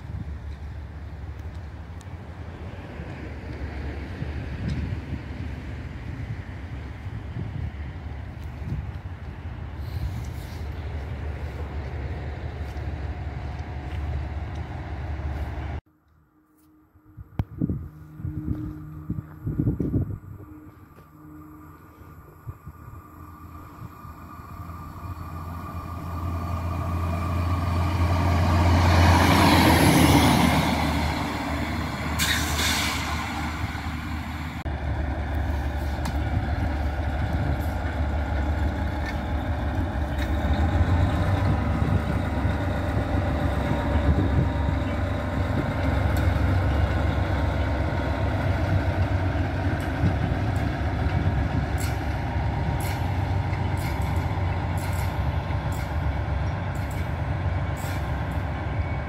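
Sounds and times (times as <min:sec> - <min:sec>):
diesel railbus passing: 0:00.0 - 0:59.0
locomotive engine drone: 0:00.0 - 0:59.0
brief hiss: 0:32.2 - 0:33.4.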